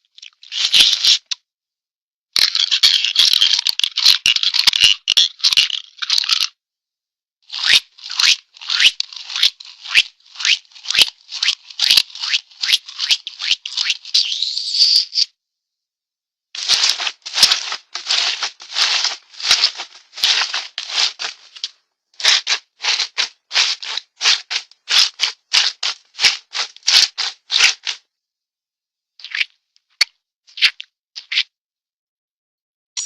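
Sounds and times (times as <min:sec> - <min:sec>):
cartoon dry rattling strokes: 0:16.6 - 0:28.0.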